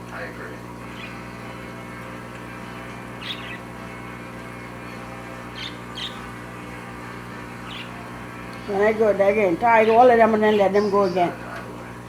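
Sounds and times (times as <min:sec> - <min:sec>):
low electrical hum: 0:00.0 - 0:12.0
bird chirping: 0:00.9 - 0:01.2, 0:03.2 - 0:03.7, 0:05.5 - 0:06.3, 0:07.6 - 0:08.0.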